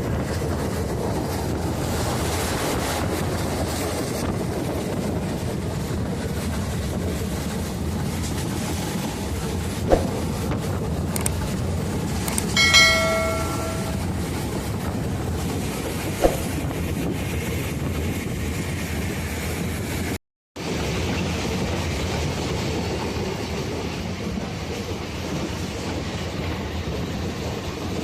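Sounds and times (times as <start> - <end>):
train wheels rumbling on rails: 0.0 - 28.0
sharp knock: 9.9 - 10.4, 12.6 - 14.2, 16.2 - 16.6.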